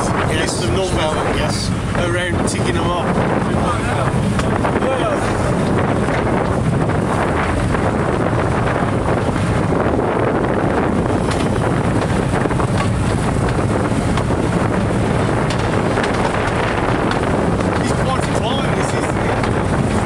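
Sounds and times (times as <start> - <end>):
wind buffeting microphone: 0.0 - 20.0
train wheels on track: 11.1 - 19.6.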